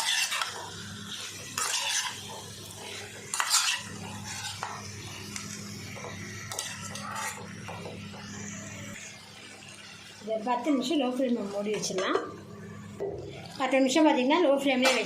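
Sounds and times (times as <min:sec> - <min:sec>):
spatula scraping a pan: 0:00.0 - 0:04.9, 0:06.0 - 0:07.5.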